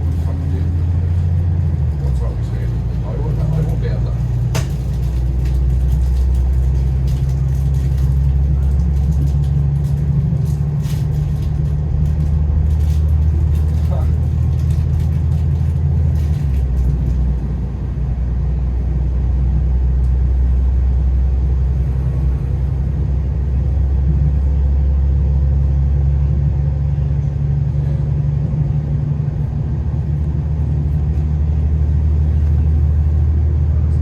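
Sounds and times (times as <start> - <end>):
train rumble inside carriage: 0.0 - 34.0.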